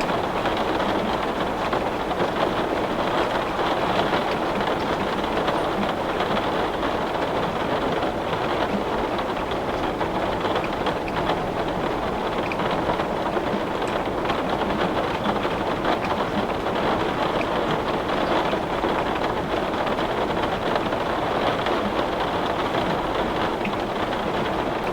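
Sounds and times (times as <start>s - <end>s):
heavy rain on window: 0.0s - 24.9s.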